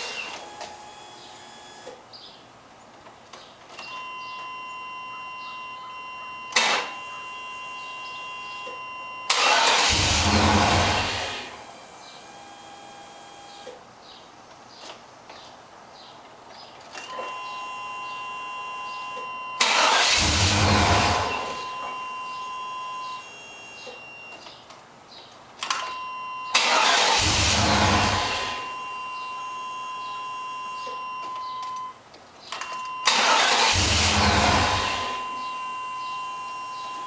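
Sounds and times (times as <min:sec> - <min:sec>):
starter cranking engine: 0:09.3 - 0:11.5, 0:19.6 - 0:21.5, 0:26.6 - 0:28.6, 0:33.1 - 0:35.2
electronic warning tone: 0:35.1 - 0:37.0.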